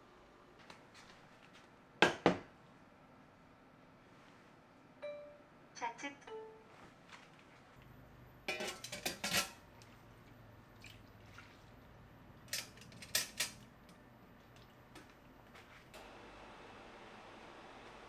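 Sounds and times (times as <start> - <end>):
dishes and utensils clattering: 8.5 - 9.7, 12.4 - 13.8.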